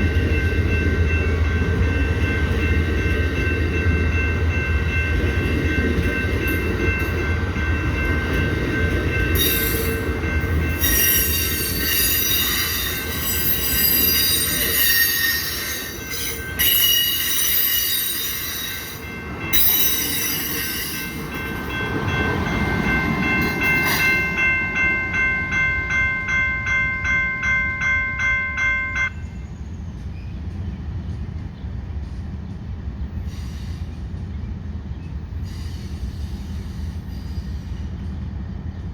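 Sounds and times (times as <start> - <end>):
pulsing ringing bell: 0.0 - 29.3
train rumbling past: 0.0 - 38.9
squealing wheels and brakes: 10.8 - 21.2, 33.2 - 38.2.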